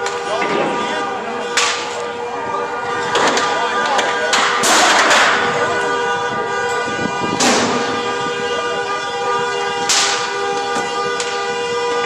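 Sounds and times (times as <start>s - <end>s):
sharp bangs: 0.0s - 2.2s, 2.9s - 12.0s
car horn sounding: 0.0s - 12.0s.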